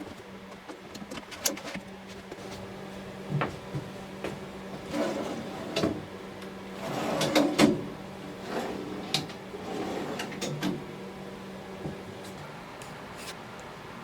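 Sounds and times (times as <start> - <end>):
drawers sliding open and shut: 4.8 - 6.1, 6.8 - 10.9.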